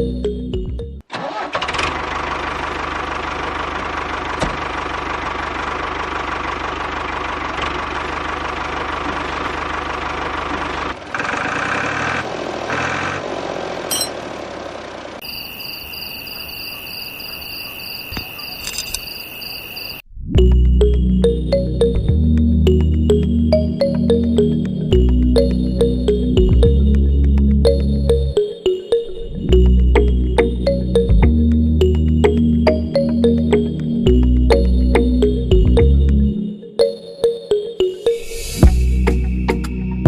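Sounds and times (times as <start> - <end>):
music: 0.0 - 1.0, 20.4 - 40.0
small motor rumbling: 1.5 - 15.2.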